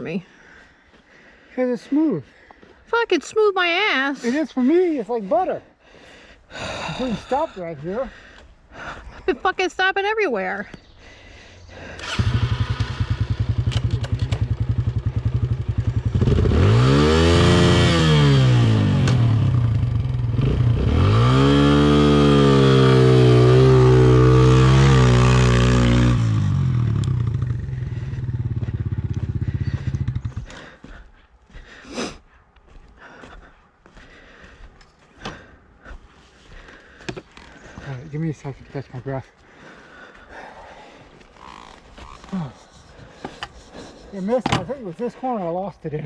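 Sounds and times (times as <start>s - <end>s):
dirt bike engine revving: 11.8s - 30.8s.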